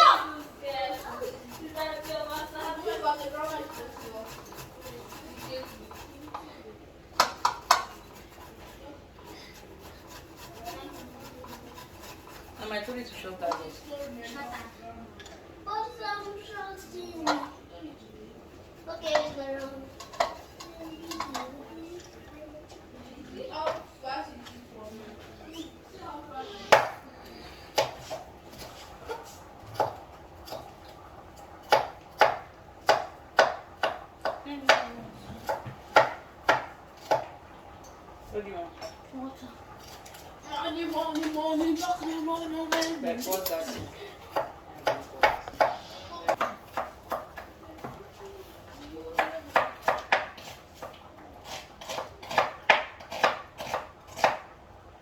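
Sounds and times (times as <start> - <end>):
knife chopping on cutting board: 27.8 - 28.2, 31.6 - 37.3, 44.3 - 47.9, 49.2 - 54.5.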